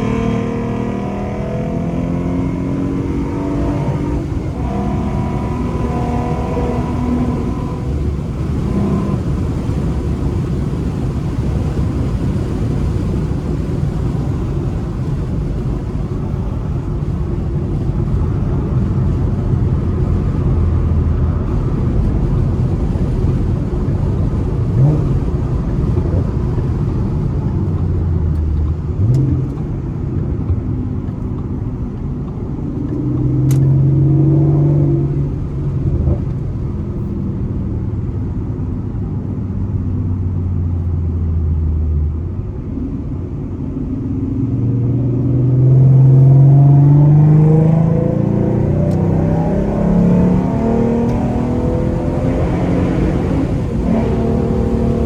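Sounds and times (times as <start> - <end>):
engine revving: 0.0 - 9.8, 32.7 - 36.3, 44.0 - 55.0
car engine droning: 0.0 - 55.0
road noise: 0.0 - 55.0.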